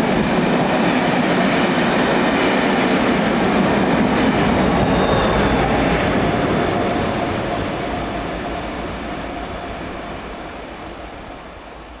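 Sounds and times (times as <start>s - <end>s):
steam train passing: 0.0s - 12.0s.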